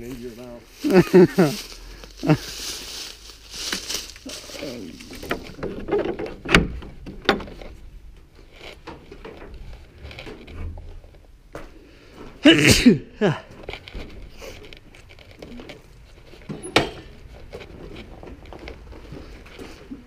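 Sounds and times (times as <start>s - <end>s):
brush crackling: 0.0s - 6.0s
person vocal burst: 12.4s - 13.5s.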